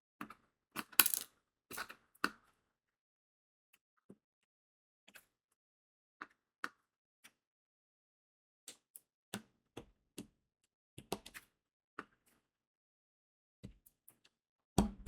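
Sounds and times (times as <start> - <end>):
beads clicking onto canvas: 1.0 - 1.3.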